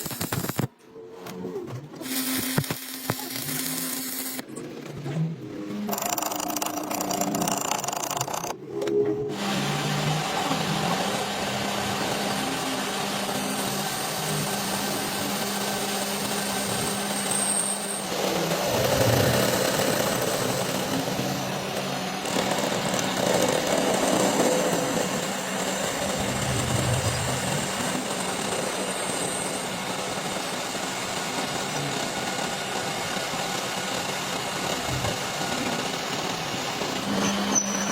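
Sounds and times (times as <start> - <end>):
machinery running: 2.0 - 31.0.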